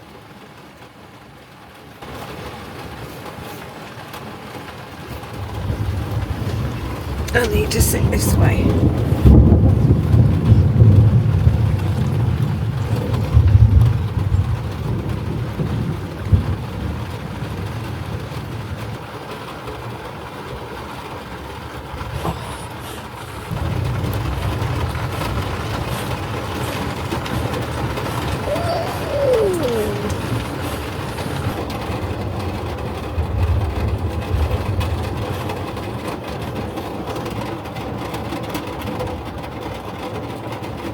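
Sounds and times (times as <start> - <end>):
thunder rumbling: 8.7 - 18.7.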